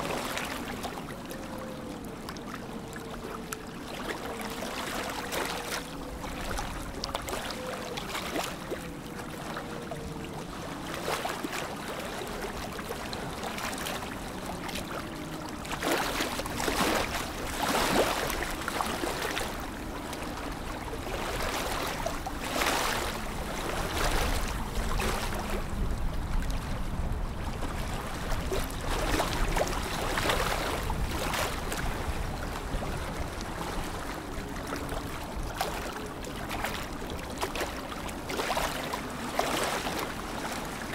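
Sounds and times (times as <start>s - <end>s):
lake water lapping: 0.0s - 40.9s
small water splashes: 0.0s - 40.9s.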